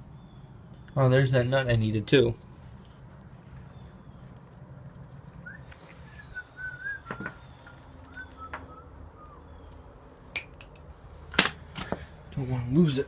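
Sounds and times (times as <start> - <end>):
soft whistling: 5.4 - 9.7.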